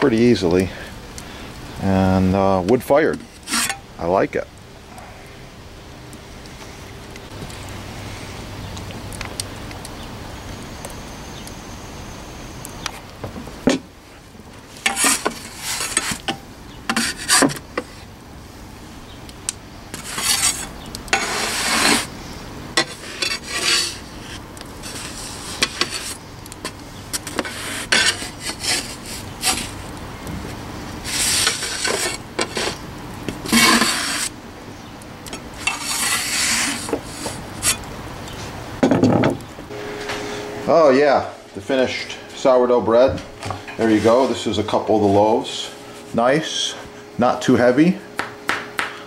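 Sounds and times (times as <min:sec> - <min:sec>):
wood fire crackling: 0:00.0 - 0:38.8, 0:39.4 - 0:49.0
metal peel scraping oven floor: 0:02.8 - 0:03.8, 0:14.8 - 0:18.0, 0:19.9 - 0:22.1, 0:22.8 - 0:29.9, 0:31.0 - 0:32.8, 0:33.4 - 0:34.3, 0:35.6 - 0:37.9, 0:43.7 - 0:44.8.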